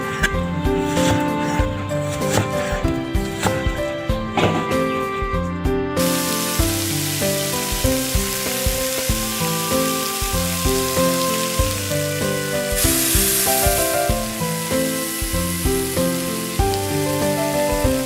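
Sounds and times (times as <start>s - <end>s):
melodic background music: 0.0s - 18.0s
food frying in a pan: 6.0s - 18.0s.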